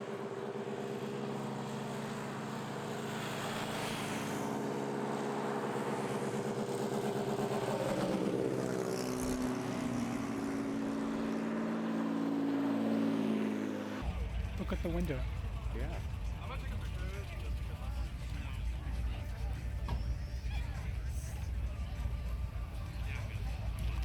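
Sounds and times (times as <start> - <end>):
rotary engine idling: 14.0 - 24.0.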